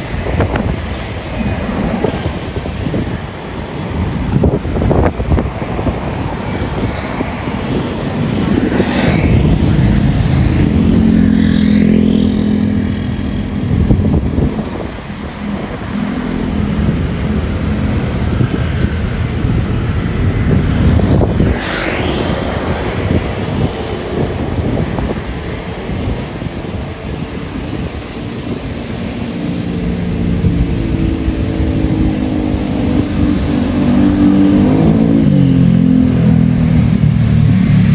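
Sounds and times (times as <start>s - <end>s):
vehicle engine rumble: 0.0s - 37.9s
wind noise: 0.0s - 37.9s.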